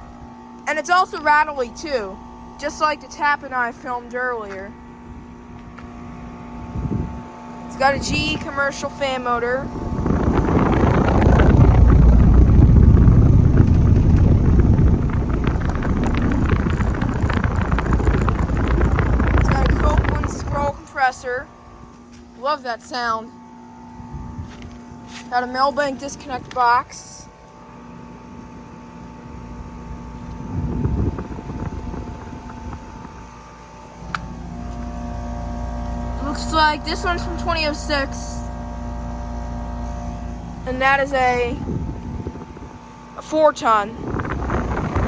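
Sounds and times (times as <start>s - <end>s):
compressor hum: 0.0s - 45.0s
fan air rush: 0.0s - 45.0s
low rumble: 4.7s - 22.4s, 29.1s - 45.0s.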